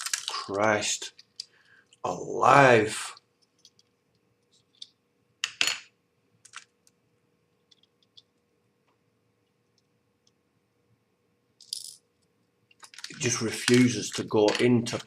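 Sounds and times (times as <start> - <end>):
plastic parts clicking and knocking: 0.0 - 0.4, 6.4 - 7.0, 12.7 - 15.0
faint steady hum: 0.0 - 15.0.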